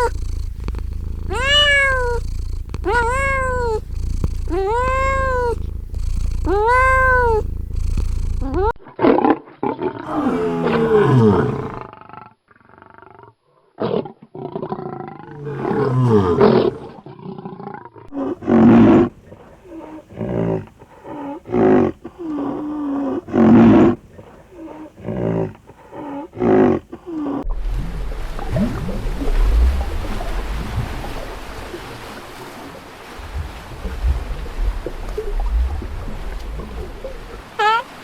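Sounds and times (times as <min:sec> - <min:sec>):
cat yowling: 0:00.0 - 0:08.7.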